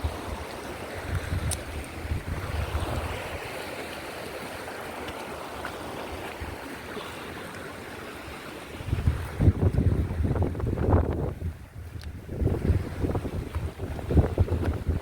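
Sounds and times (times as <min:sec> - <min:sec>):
wind buffeting microphone: 0:00.0 - 0:03.6, 0:08.8 - 0:15.0
stream flowing: 0:00.0 - 0:15.0.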